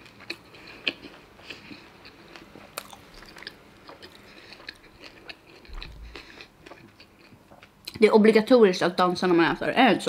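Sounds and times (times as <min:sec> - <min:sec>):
person chewing crunchy food: 0:00.0 - 0:08.0.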